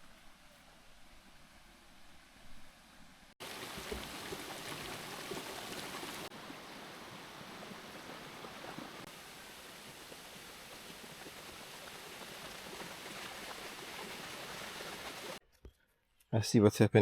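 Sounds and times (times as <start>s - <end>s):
quiet outdoor ambience: 0.0s - 17.0s
stream water flowing: 3.4s - 15.4s.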